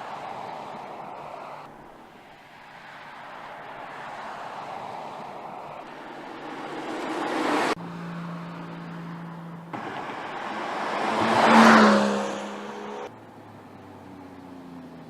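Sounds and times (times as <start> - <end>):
car engine driving past: 3.1 - 13.2.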